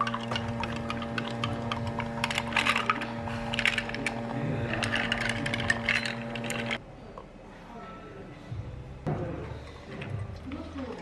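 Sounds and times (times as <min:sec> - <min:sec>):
dishes and utensils clinking: 0:00.0 - 0:06.8
electric machine hum: 0:00.0 - 0:06.8.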